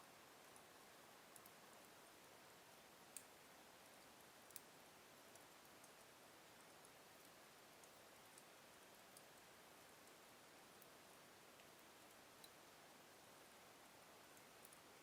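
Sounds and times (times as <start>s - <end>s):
steady low hiss: 0.0s - 15.0s
wood fire crackling: 3.0s - 6.1s, 11.5s - 12.7s, 14.2s - 15.0s.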